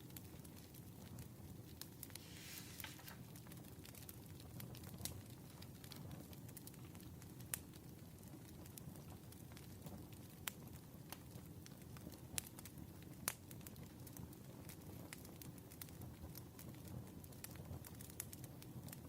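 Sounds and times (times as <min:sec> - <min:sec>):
wood fire crackling and popping: 0:00.0 - 0:19.0
fire hiss: 0:01.9 - 0:03.4.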